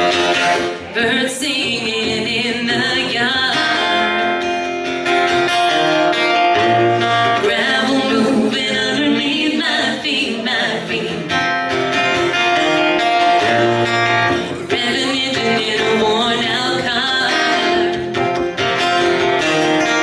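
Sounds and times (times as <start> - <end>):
strummed acoustic guitar: 0.0 - 20.0
woman singing: 0.8 - 4.5, 7.0 - 11.6, 13.0 - 18.2.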